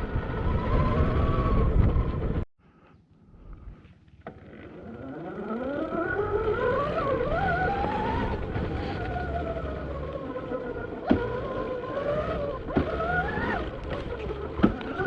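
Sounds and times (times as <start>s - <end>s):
wind buffeting microphone: 0.0s - 2.4s
electric motor whining: 4.3s - 15.0s.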